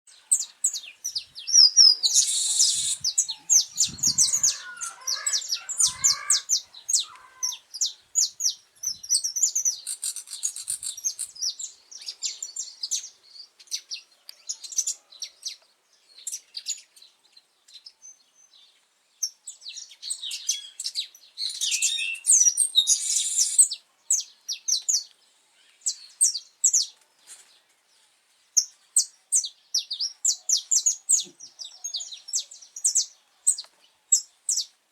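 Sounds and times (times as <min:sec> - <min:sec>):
finch singing: 0:00.1 - 0:15.0, 0:19.7 - 0:25.1.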